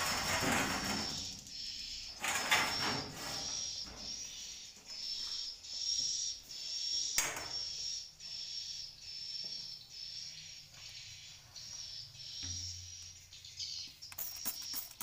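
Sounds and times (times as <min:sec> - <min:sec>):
swiftlet twittering: 0:10.0 - 0:15.0.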